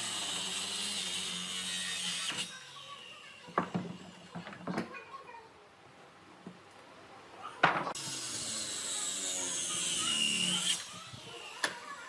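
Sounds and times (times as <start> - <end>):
power tool cutting wood: 0.0 - 4.4, 8.0 - 12.0.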